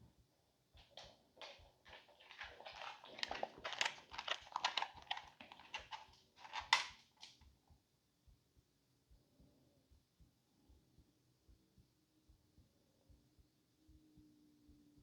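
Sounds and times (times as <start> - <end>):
dog scuffling: 0.8 - 7.3.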